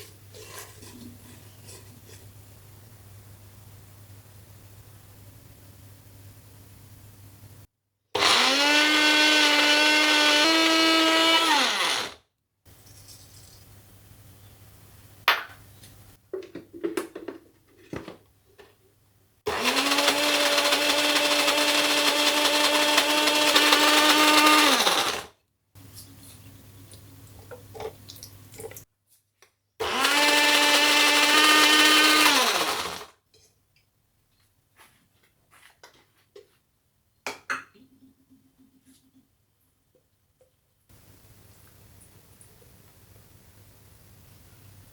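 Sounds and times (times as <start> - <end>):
kitchen blender motor humming: 8.2 - 12.2, 19.5 - 25.3, 29.8 - 33.1.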